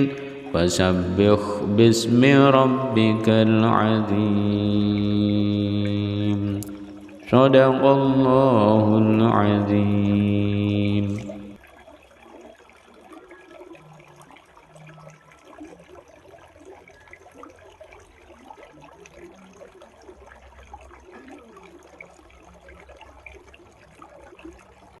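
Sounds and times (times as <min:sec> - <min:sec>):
water gurgling and trickling: 0:00.0 - 0:25.0.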